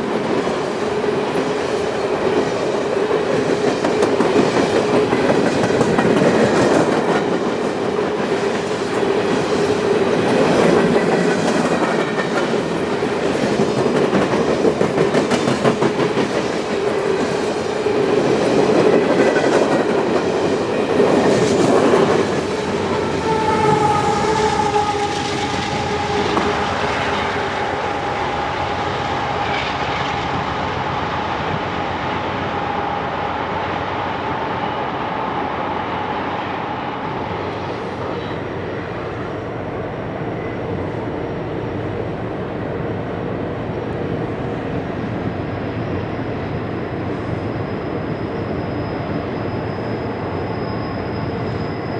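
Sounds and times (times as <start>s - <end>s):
train wheels clicking on rails: 0.0s - 28.3s.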